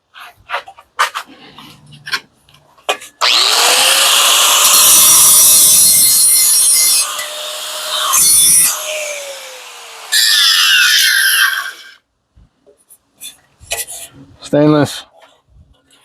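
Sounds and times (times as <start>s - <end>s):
power tool grinding metal: 3.2s - 12.0s.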